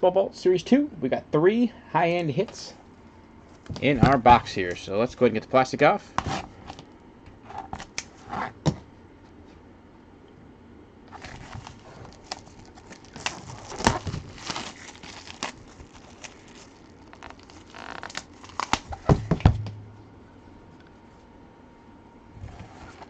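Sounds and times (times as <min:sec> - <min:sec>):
plastic wrap crinkling: 0:11.1 - 0:19.7.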